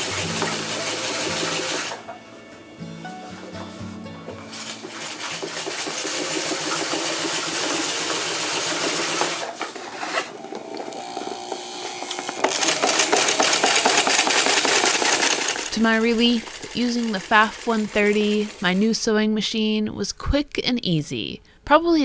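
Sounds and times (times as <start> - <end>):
sewing machine stitching: 4.5 - 18.8.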